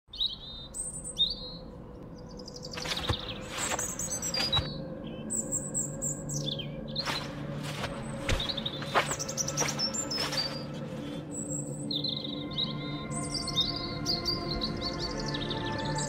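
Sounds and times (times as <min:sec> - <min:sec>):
small birds chirping and singing: 0:00.1 - 0:16.0
brief rustles: 0:02.8 - 0:04.7.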